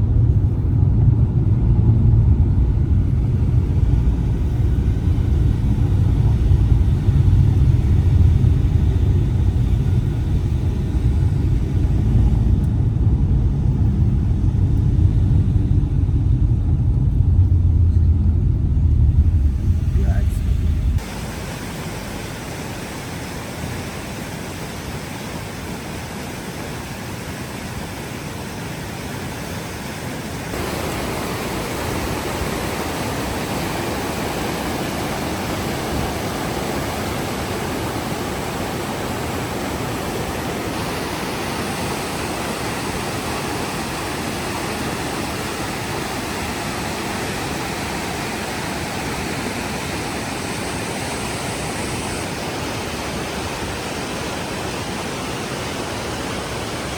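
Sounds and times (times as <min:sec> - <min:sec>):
river water rushing: 0:21.0 - 0:56.9.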